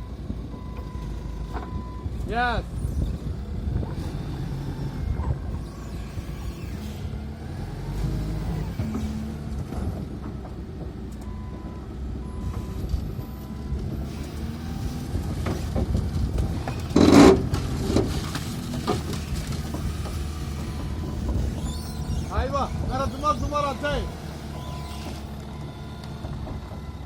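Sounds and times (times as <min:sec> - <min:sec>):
truck engine rumbling: 0:00.0 - 0:27.0.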